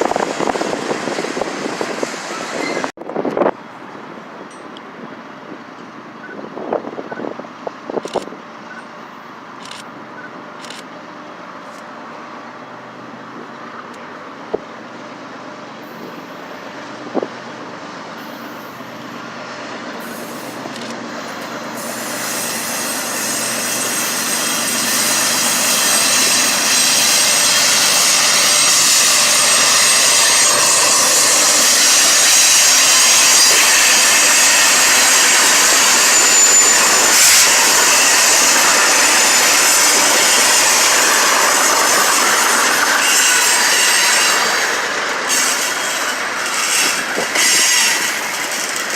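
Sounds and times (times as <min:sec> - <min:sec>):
freight train wheels on rails: 0:00.0 - 0:48.9
wheel squeal: 0:02.3 - 0:02.9, 0:21.8 - 0:48.9.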